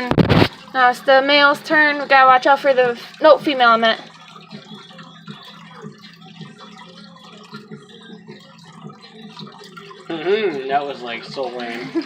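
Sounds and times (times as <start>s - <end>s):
water trickling and dripping: 0.0s - 12.0s.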